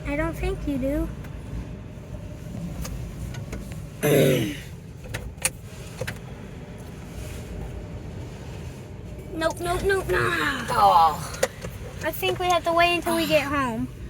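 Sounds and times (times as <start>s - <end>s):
low rumble in car: 0.0s - 14.0s
short strained sound: 4.0s - 4.7s.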